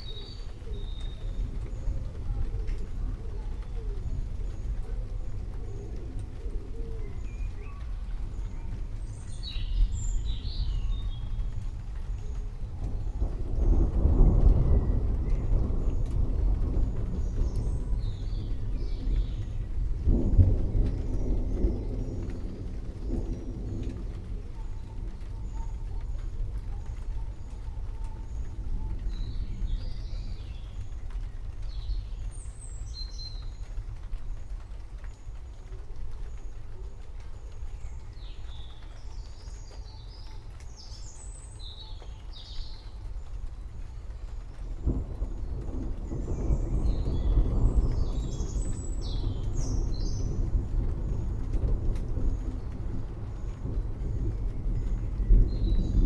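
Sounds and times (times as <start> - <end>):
dove cooing: 0.5 - 8.0
small birds chirping: 7.0 - 14.4, 36.4 - 56.0
steady low rumble: 43.1 - 56.0.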